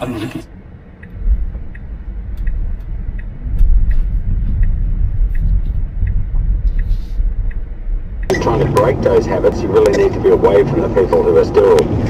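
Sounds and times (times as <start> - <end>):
truck engine and road rumble: 0.0 - 12.0
faint regular tick: 1.0 - 8.3.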